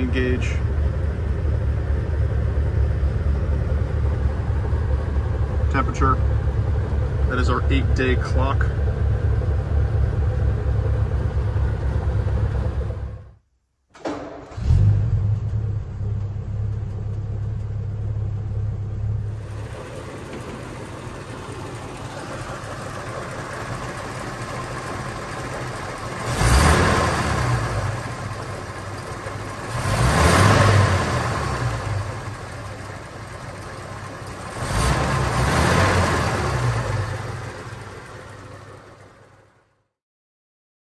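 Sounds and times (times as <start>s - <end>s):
car engine idling fast: 0.0s - 13.4s, 15.4s - 39.8s
car engine revving: 14.5s - 39.1s.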